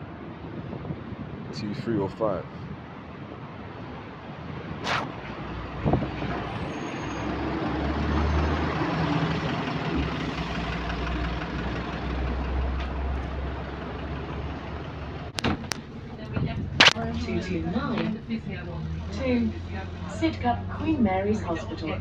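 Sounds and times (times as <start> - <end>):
brief sharp sound: 4.8 - 5.1, 16.8 - 17.0
bus diesel engine droning: 6.0 - 16.2, 17.2 - 22.0.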